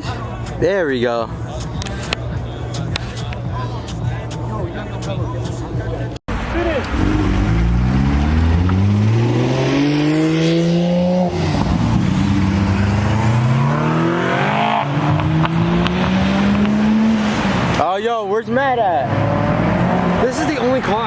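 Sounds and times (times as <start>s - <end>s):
car engine accelerating hard: 6.3s - 17.8s, 18.9s - 21.0s.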